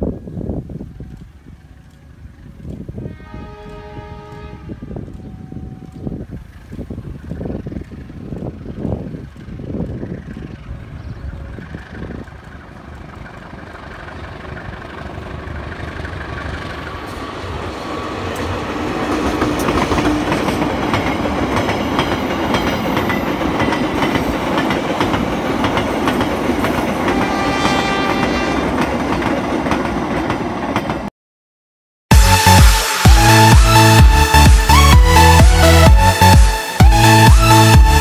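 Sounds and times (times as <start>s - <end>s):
diesel locomotive passing: 0.2s - 31.1s, 32.1s - 38.0s
train wheels clacking on rails: 11.6s - 31.1s.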